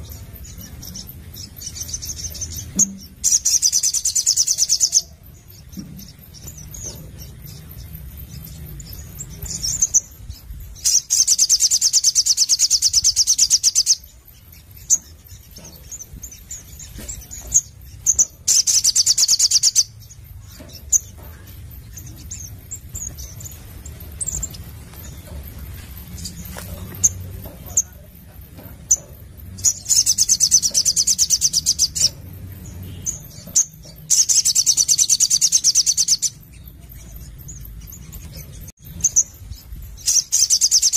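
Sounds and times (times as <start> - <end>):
sharp bird chips: 0.0 - 40.9.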